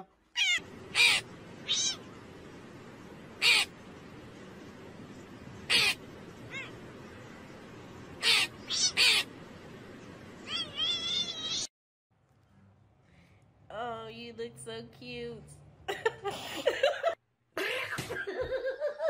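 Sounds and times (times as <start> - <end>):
steady low hiss: 0.6 - 11.5
crow cawing: 5.7 - 6.0.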